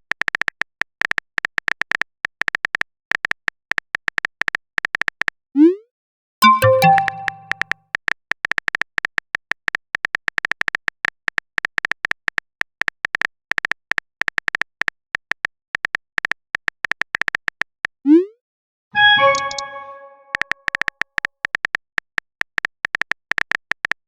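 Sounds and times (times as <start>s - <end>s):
notification chime: 6.4s - 7.6s, 19.0s - 20.5s
phone keyboard typing clicks: 6.4s - 7.6s.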